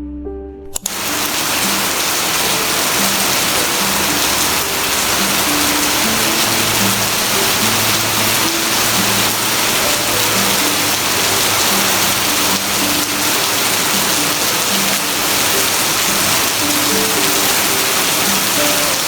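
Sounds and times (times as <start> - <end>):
soft slow background music: 0.0 - 19.0
heavy rain hissing: 0.8 - 19.0.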